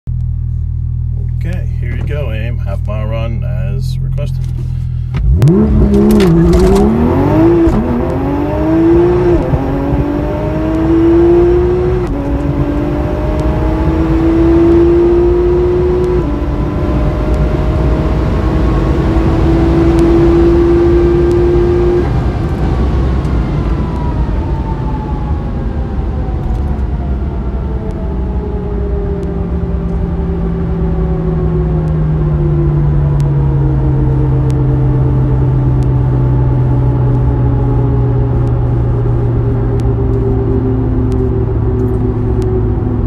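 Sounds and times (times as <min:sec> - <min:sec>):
car engine at full throttle: 0:00.1 - 0:43.0
gear upshifts: 0:01.2 - 0:22.6.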